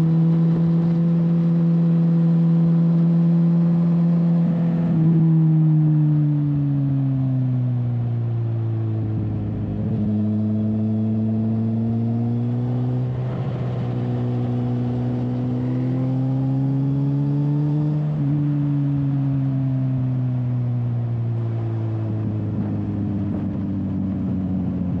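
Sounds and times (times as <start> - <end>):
wind rumbling on microphone: 22.0 - 25.0.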